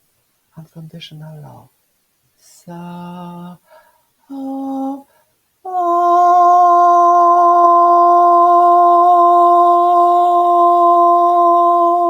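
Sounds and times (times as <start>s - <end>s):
person humming a long tone: 4.3s - 12.0s.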